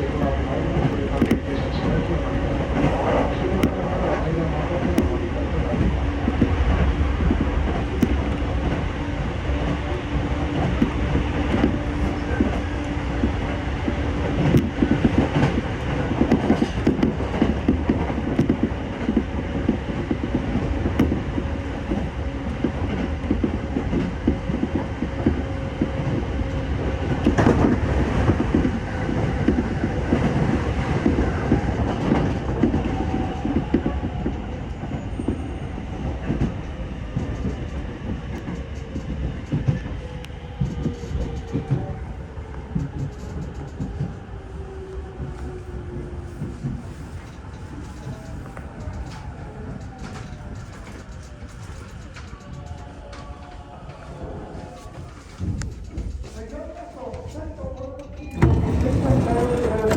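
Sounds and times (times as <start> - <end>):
wheels rumbling on rail: 0.0 - 59.9
clicks over track: 57.8 - 59.9.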